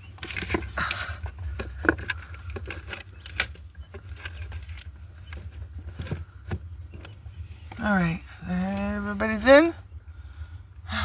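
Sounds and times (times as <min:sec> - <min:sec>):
steady low hum: 0:00.0 - 0:11.0
hands handling incubator clicks: 0:00.1 - 0:07.2.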